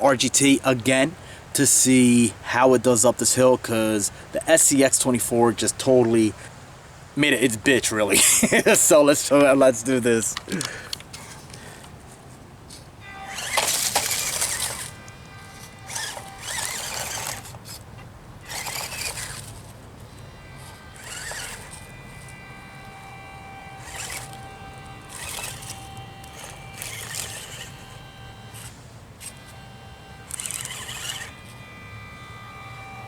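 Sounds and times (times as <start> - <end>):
electric motor whining in bursts: 10.4 - 11.9, 13.0 - 33.0.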